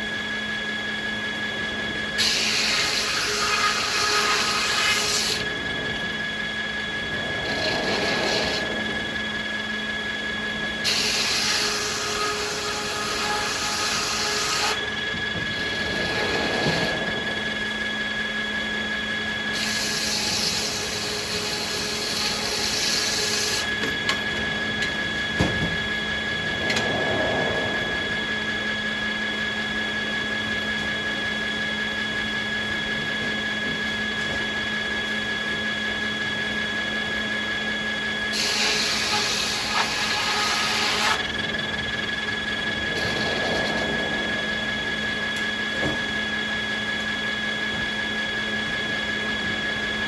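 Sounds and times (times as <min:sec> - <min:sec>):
sawmill machinery whining: 0:00.0 - 0:50.0
loud hissing: 0:25.9 - 0:29.8.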